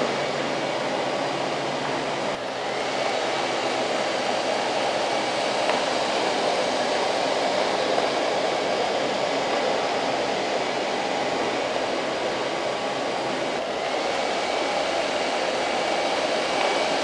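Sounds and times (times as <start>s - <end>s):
robot vacuum whirring: 0.0s - 17.0s.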